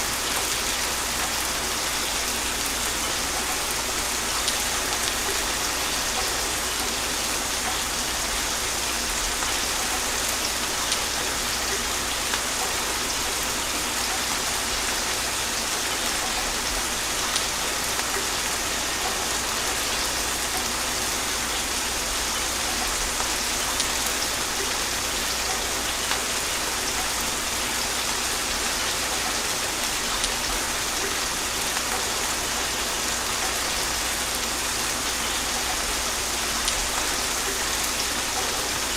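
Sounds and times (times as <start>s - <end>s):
gentle rain falling: 0.0s - 38.9s.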